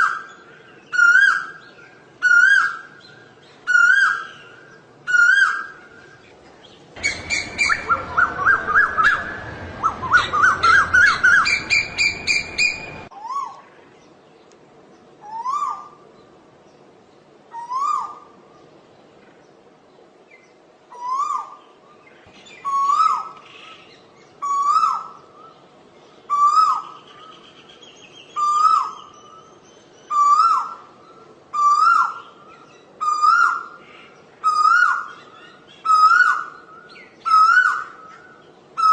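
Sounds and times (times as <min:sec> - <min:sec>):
background noise: 0:00.0 - 0:38.9
koel calling: 0:07.0 - 0:13.5.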